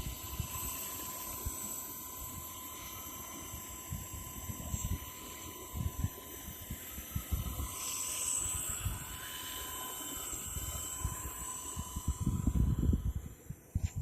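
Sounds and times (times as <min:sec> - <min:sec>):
rc helicopter rotors whining: 0:00.0 - 0:14.0
wind gusts on microphone: 0:10.6 - 0:14.0.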